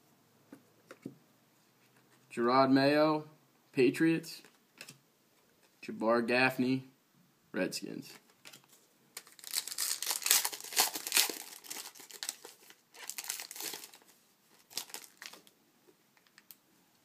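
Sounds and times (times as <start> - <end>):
foil wrapper crinkling and tearing: 9.2 - 15.5.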